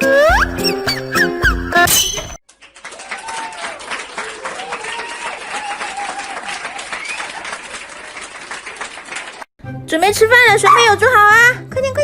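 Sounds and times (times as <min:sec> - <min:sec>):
crowd clapping: 0:02.5 - 0:09.5.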